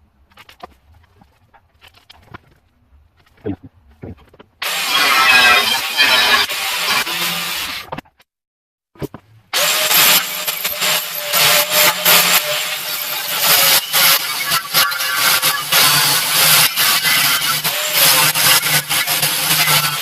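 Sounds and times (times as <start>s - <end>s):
power grinder grinding metal: 4.6s - 7.9s, 9.6s - 20.0s.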